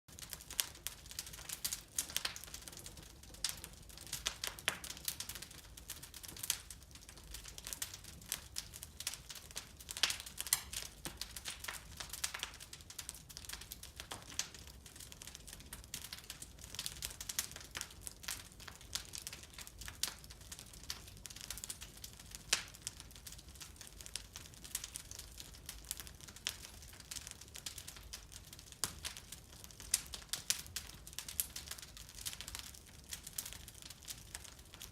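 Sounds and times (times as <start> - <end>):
wood fire crackling and popping: 0.1 - 34.9.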